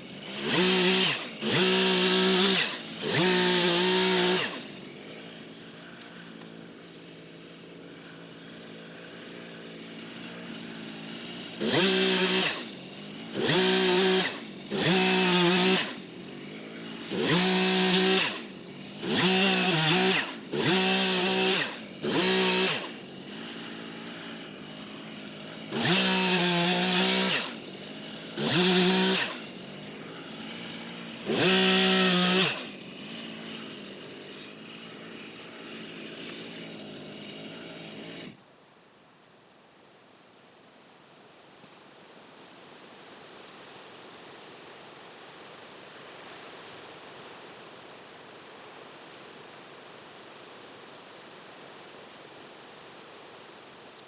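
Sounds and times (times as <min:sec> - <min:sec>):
chainsaw idling and revving: 0:00.0 - 0:38.4.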